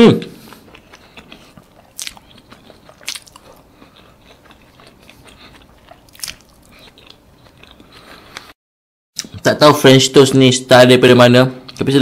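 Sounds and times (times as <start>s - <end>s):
quiet chewing: 0.4s - 8.6s.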